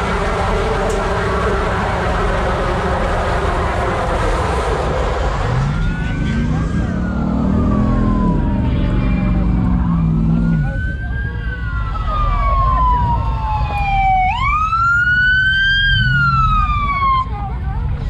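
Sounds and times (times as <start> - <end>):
vehicle engine running: 0.0 - 11.8
police siren wailing: 0.0 - 17.7.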